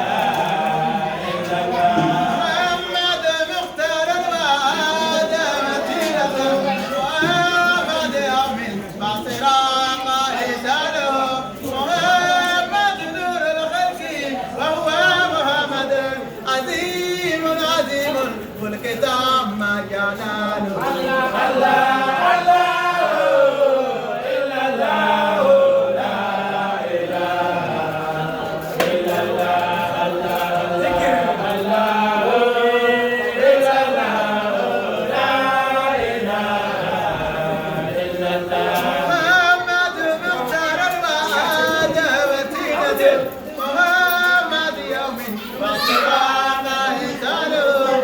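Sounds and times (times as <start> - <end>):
group chanting a praise song: 0.0 - 48.0.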